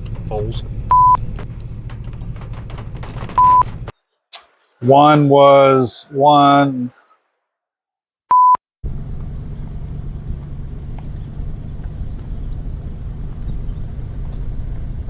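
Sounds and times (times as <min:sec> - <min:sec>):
low rumble: 0:00.0 - 0:03.9, 0:08.8 - 0:15.0
short electronic beep: 0:03.4 - 0:03.6.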